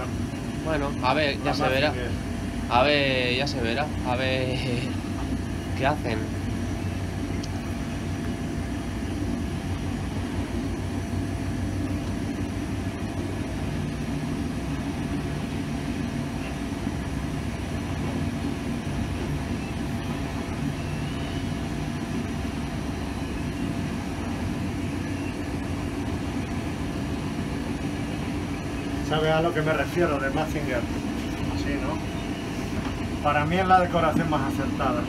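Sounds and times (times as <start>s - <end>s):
train wheels rumbling inside train: 16.1s - 21.0s.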